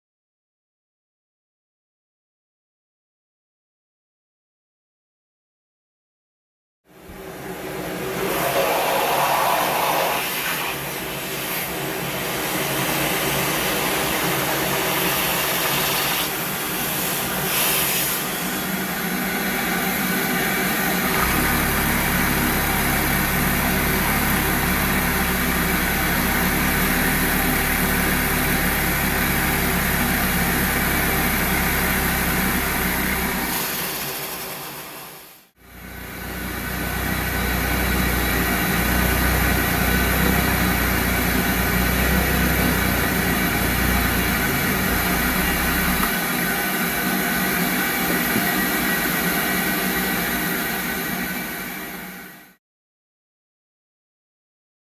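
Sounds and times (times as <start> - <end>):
vacuum cleaner running: 7.0 - 52.4
deep low hum: 21.1 - 33.4, 35.7 - 46.1.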